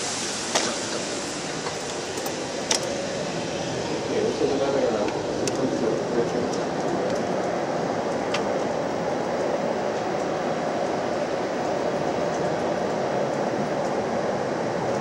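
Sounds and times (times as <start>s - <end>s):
cabin ventilation air rushing: 0.0s - 15.0s.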